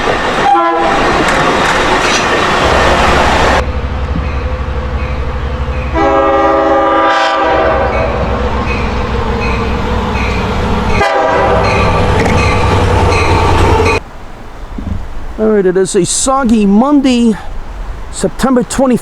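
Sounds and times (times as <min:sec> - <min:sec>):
train wheels rumbling: 0:00.0 - 0:19.0
train horn chord: 0:00.4 - 0:01.0, 0:05.5 - 0:12.1.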